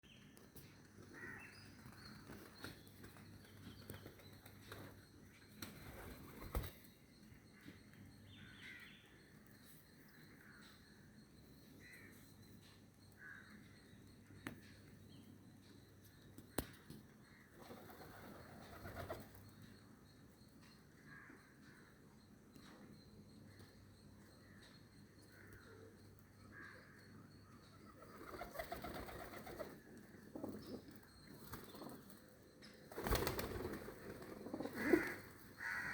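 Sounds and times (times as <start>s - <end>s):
faint bird calls: 1.0s - 2.8s, 32.9s - 35.9s.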